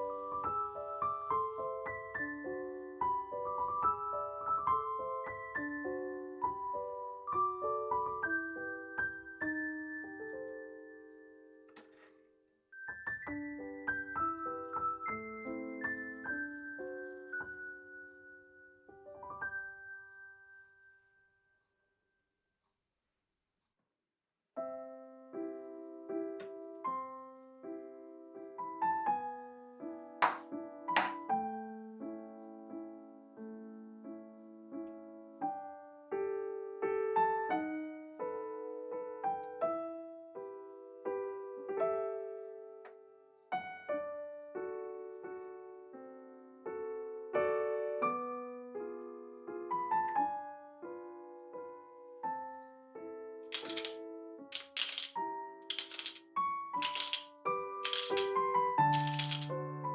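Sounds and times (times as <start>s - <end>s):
solo piano chords: 0.0s - 11.7s, 12.8s - 21.2s.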